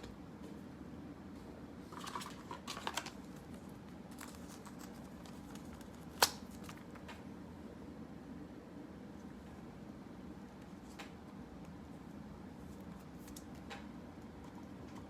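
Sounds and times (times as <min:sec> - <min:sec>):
low room hum: 0:00.0 - 0:15.0
trading cards clicking and rustling: 0:01.9 - 0:07.2, 0:12.8 - 0:15.0.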